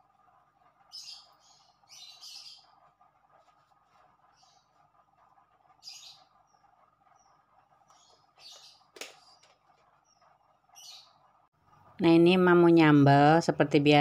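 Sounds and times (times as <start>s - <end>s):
faint bird chirps: 0.8s - 11.5s.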